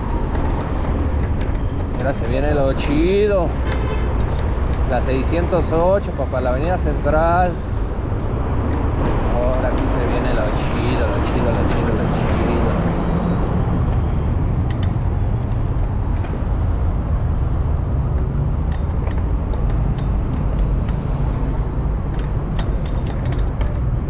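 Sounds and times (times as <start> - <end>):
rumble of city traffic: 0.0 - 24.0.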